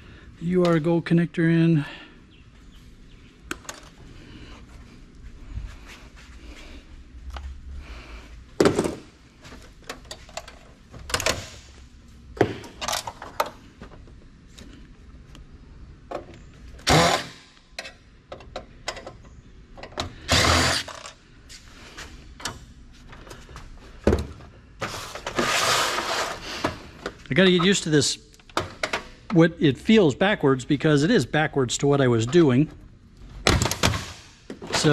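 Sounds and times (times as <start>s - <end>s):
metal and plastic parts clanking: 8.6s - 11.7s, 12.4s - 14.0s, 16.1s - 21.2s
loud clatter of scrap: 24.8s - 26.6s.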